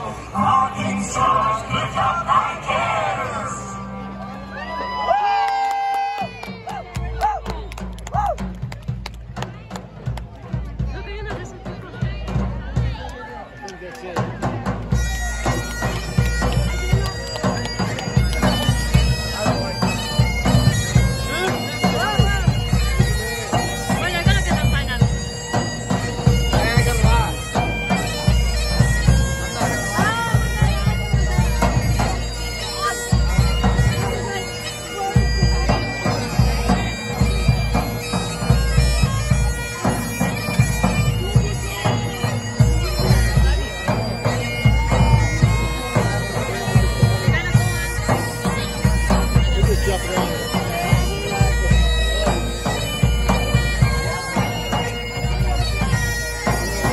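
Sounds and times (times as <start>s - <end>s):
bagpipe music: 0.0s - 5.0s, 10.6s - 56.9s.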